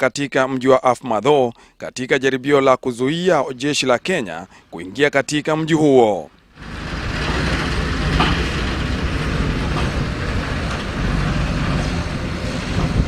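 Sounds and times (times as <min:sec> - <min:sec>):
heavy engine rumbling and rattling: 0:06.6 - 0:13.0.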